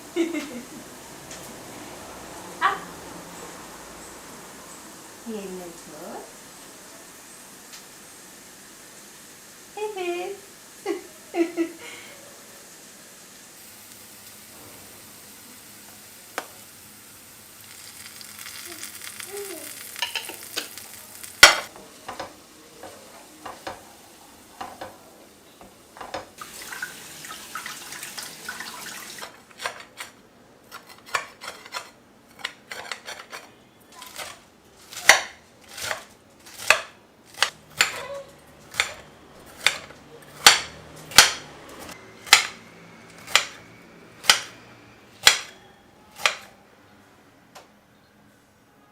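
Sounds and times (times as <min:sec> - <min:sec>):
cooking hiss: 0:00.0 - 0:30.0.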